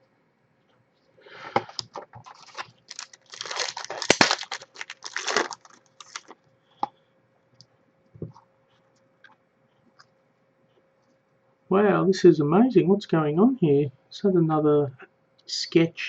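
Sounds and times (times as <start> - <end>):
wrapper being torn and crinkled: 2.2 - 6.4.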